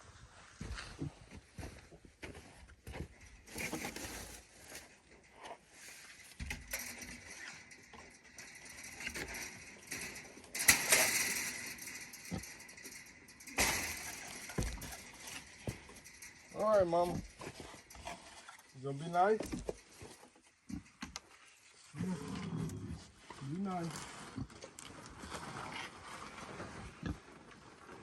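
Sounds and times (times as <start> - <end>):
metal gate rattling: 3.2 - 21.4.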